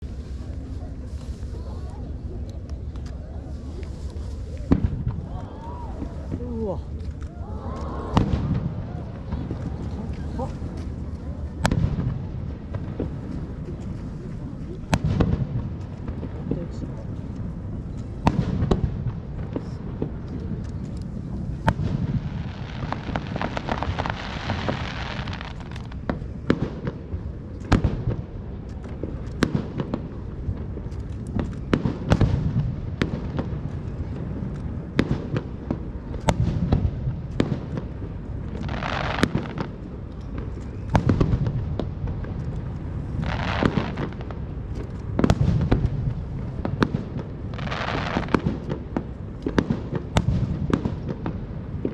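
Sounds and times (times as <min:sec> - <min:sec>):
low rumble: 0:00.0 - 0:38.8
firework crackling: 0:00.0 - 0:51.9
hissing crackles: 0:00.0 - 0:51.9.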